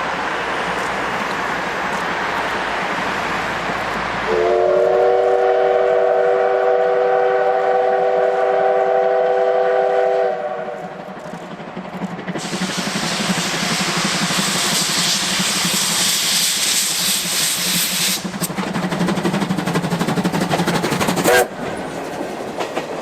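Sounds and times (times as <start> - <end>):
steady rushing hiss: 0.0 - 23.0
steam whistle chord blast: 4.3 - 10.8.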